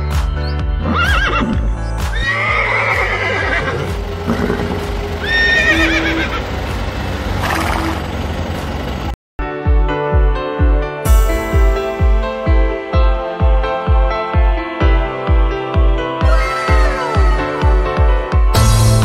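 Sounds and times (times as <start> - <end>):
background music: 0.0 - 19.0
horse whinnying: 0.8 - 6.4.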